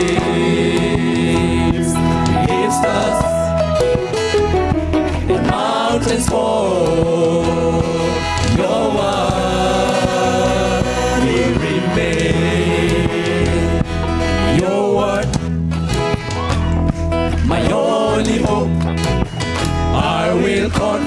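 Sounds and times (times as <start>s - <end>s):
voices singing held notes: 0.0s - 4.6s, 5.3s - 13.8s
band with steady bass line: 0.0s - 8.7s.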